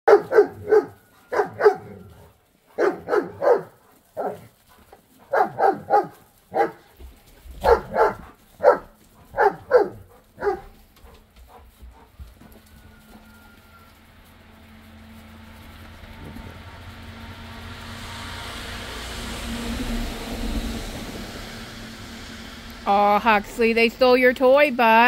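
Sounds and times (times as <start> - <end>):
dogs barking: 0.1 - 4.6, 5.2 - 6.9, 7.6 - 10.8.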